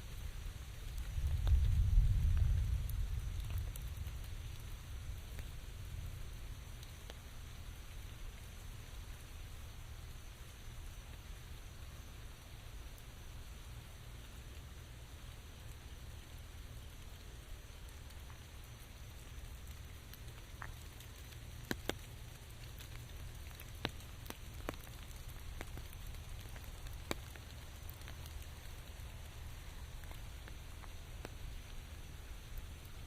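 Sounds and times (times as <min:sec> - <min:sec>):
rain hissing: 0:00.0 - 0:33.0.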